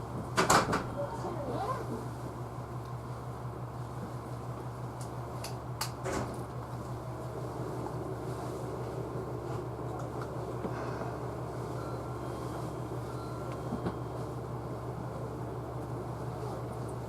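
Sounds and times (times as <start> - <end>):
train electrical hum: 0.0 - 17.0
train running noise: 6.2 - 17.0.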